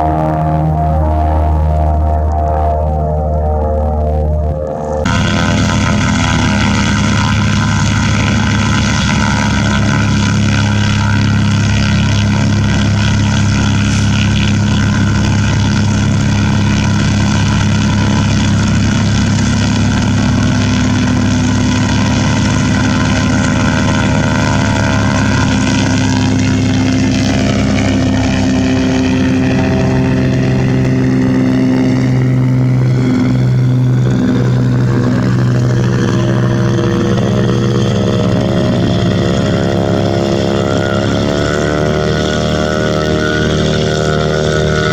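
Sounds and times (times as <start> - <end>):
propeller aircraft engine droning: 0.0 - 44.9.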